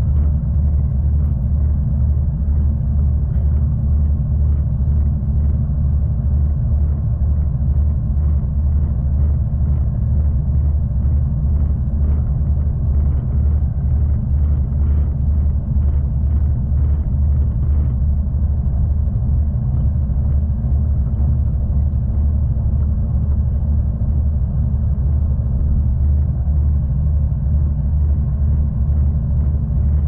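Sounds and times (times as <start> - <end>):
train rumbling on board: 0.0 - 30.0.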